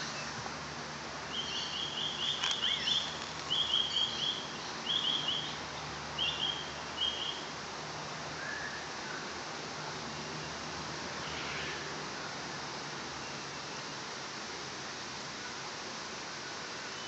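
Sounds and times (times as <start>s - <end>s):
bird chirping: 1.3s - 5.6s, 6.2s - 7.4s.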